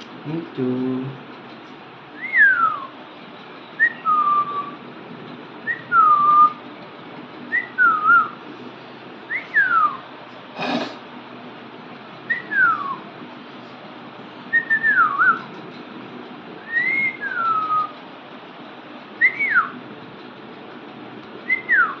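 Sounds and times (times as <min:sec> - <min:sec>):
gliding whistles: 0:02.2 - 0:03.0, 0:03.7 - 0:04.8, 0:05.6 - 0:06.6, 0:14.5 - 0:15.5, 0:16.6 - 0:18.0, 0:19.2 - 0:19.8, 0:21.4 - 0:22.0.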